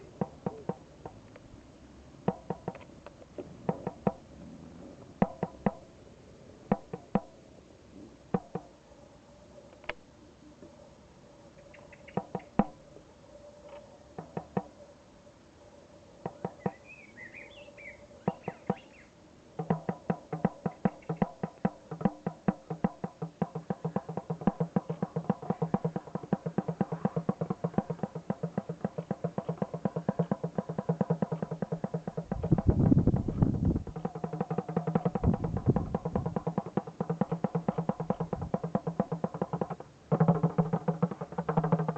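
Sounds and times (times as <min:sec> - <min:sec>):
hand drumming: 0:03.7 - 0:04.2, 0:05.2 - 0:05.8, 0:06.7 - 0:07.3, 0:08.3 - 0:08.7, 0:19.6 - 0:41.9.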